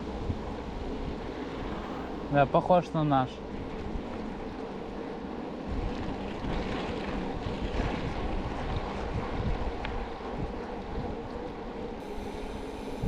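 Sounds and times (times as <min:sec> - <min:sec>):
wind noise on microphone: 0:00.0 - 0:02.2, 0:05.6 - 0:13.0
vehicle engine and road rumble: 0:00.0 - 0:07.7.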